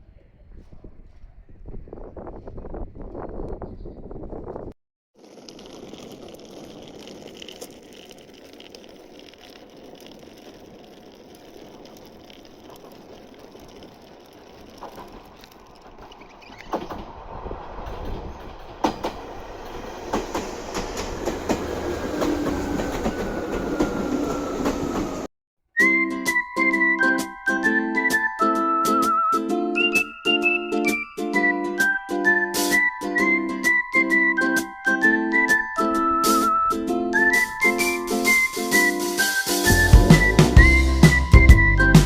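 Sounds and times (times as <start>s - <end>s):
train running on rails: 5.2s - 25.3s, 35.0s - 42.0s
rail clacking: 5.7s - 25.3s
faint high squeal: 21.8s - 25.3s, 32.7s - 40.6s.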